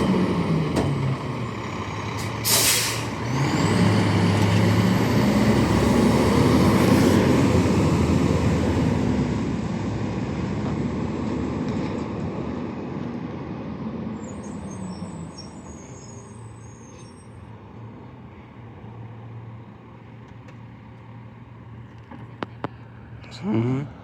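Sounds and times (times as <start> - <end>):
garbage truck driving off: 0.0 - 12.8.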